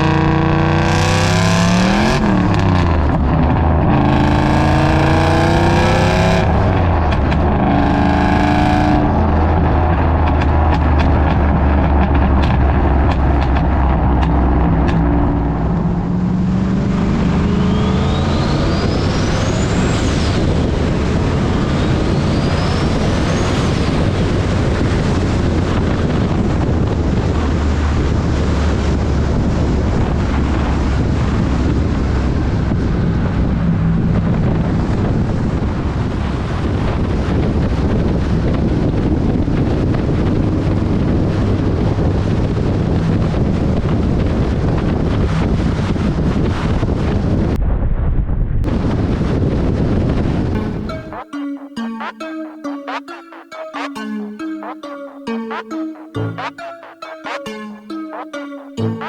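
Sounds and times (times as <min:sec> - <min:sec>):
car engine revving under load: 0:00.0 - 0:35.2
high turbo whistles: 0:16.4 - 0:24.8.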